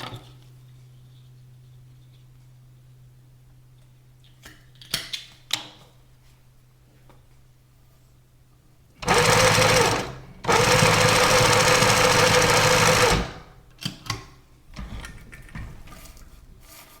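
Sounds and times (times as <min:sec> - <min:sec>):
sewing machine whirring: 0:09.0 - 0:13.6.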